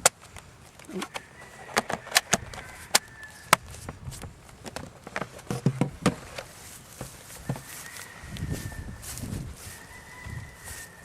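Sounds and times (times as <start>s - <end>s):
dull thumps: 0.8s - 8.0s.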